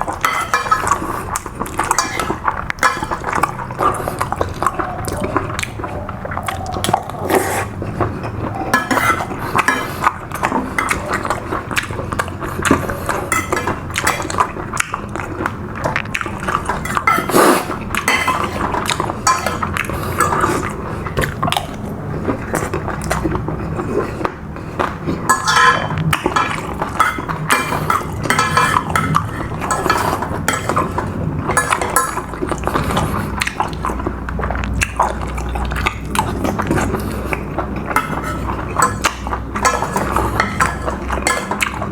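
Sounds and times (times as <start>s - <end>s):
cutlery clinking on a plate: 0.1s - 3.6s, 8.7s - 11.9s, 12.7s - 14.4s, 16.5s - 21.4s, 25.2s - 33.6s, 37.9s - 41.9s.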